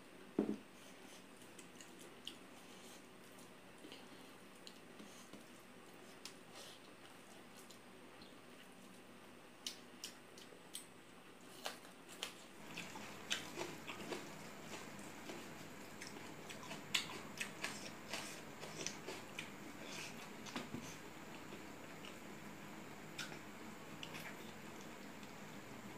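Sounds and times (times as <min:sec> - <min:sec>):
chewing and lip smacks: 0:01.4 - 0:08.7, 0:09.6 - 0:20.6, 0:23.2 - 0:23.4
wet squishes of food mixing: 0:11.6 - 0:22.3.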